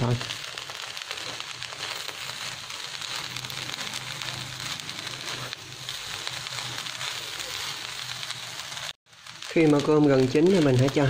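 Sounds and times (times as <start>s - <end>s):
fried rice sizzling in a pan: 0.0s - 11.0s.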